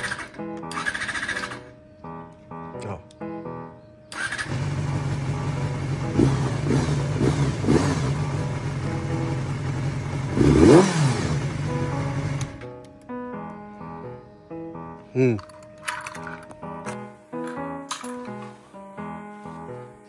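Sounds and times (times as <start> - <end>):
motorcycle engine idling and revving: 0.0 - 1.7, 4.1 - 12.6.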